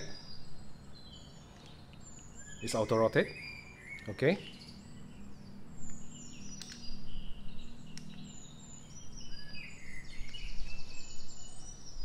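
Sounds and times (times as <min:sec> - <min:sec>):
small birds chirping: 0:00.0 - 0:12.0
steady low hum: 0:00.0 - 0:12.0
light clicks: 0:05.8 - 0:07.0, 0:07.9 - 0:08.3.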